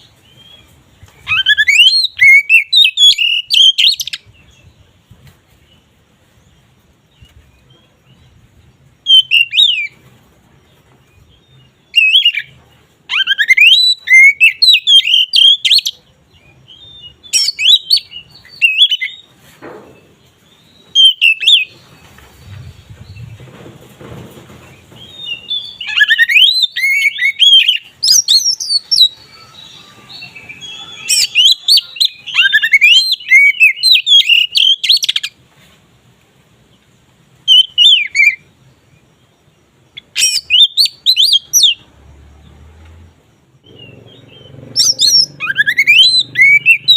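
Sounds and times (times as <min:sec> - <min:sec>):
songbird whistling and chattering: 0:00.0 - 0:04.4, 0:09.0 - 0:10.0, 0:11.9 - 0:16.0, 0:16.6 - 0:19.3, 0:20.8 - 0:23.4, 0:25.0 - 0:35.4, 0:37.5 - 0:38.6, 0:39.9 - 0:41.9, 0:43.6 - 0:46.9.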